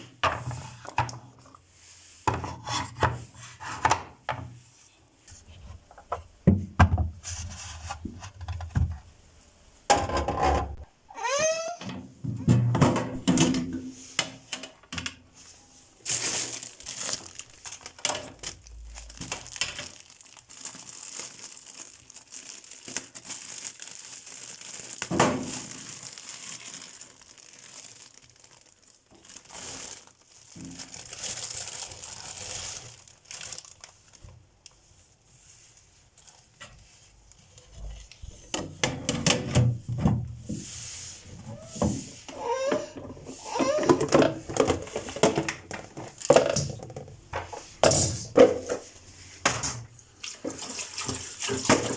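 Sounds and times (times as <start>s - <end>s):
plastic packaging crinkling: 15.5s - 34.8s.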